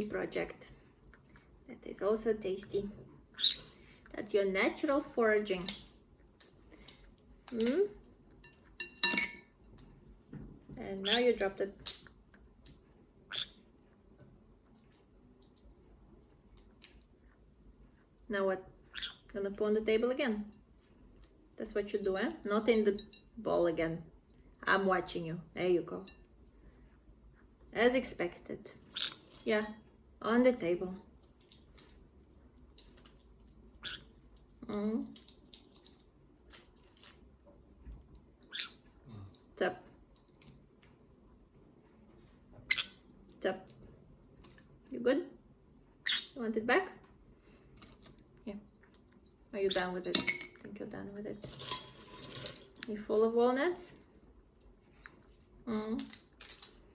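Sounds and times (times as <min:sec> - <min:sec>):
parrot nibbling a walnut: 0:37.9 - 0:40.8.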